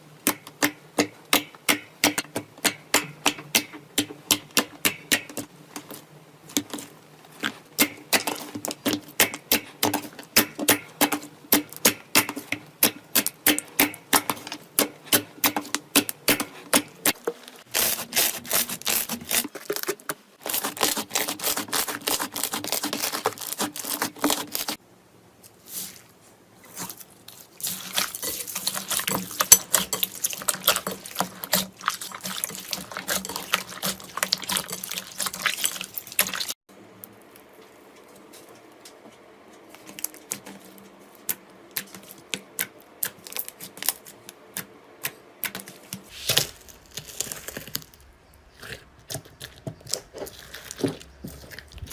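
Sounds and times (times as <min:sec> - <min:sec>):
slime clicking and crackling: 0:48.6 - 0:51.9.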